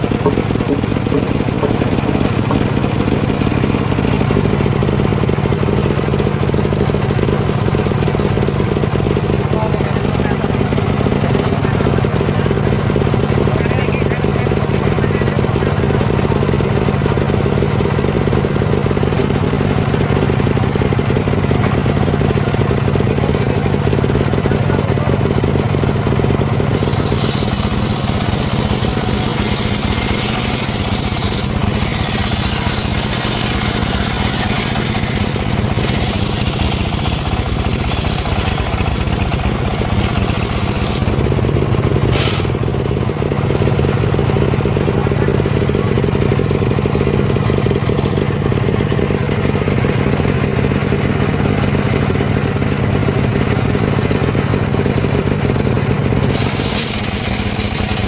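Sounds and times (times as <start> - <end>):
saw blade cutting log: 0.0 - 5.0, 26.6 - 42.6, 56.2 - 58.0
sawmill engine running: 0.0 - 58.0.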